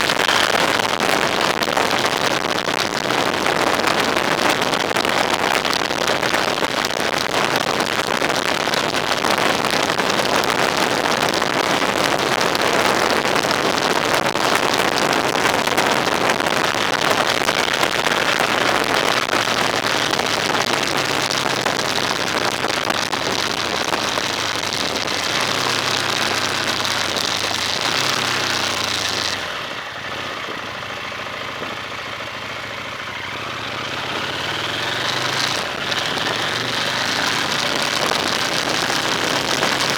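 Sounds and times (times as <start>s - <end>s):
tyre and wind noise: 0.0s - 39.9s
low engine hum: 21.8s - 39.9s.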